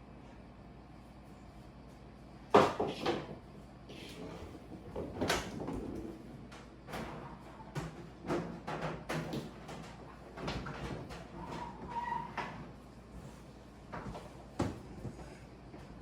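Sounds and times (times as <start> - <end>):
refrigerator doors and drawers clattering: 4.1 - 12.7.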